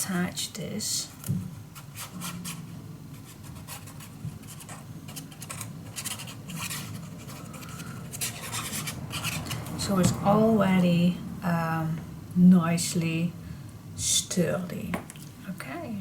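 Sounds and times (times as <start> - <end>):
paper being rubbed by hand: 1.8 - 9.6.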